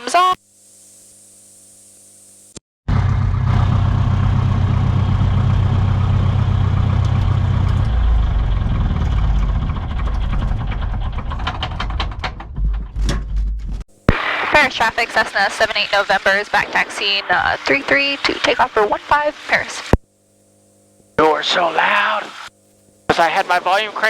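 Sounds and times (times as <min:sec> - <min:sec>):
airplane engine drone: 0:02.9 - 0:13.2, 0:14.1 - 0:20.0.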